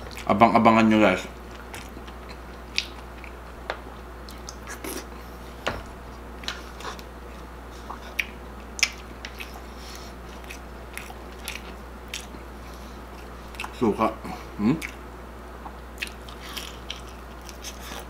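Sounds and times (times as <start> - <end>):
chewing crunchy food: 0.0 - 0.3, 1.3 - 5.2, 6.4 - 13.8, 15.6 - 18.0.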